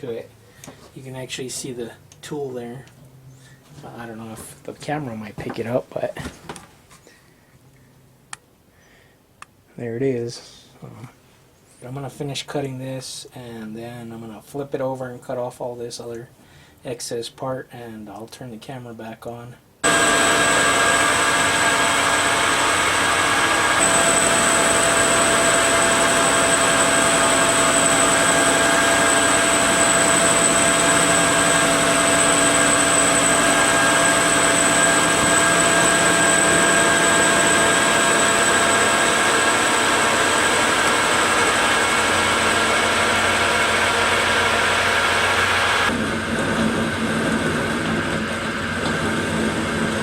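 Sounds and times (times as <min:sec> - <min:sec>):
metal lathe running: 0:19.8 - 0:50.0.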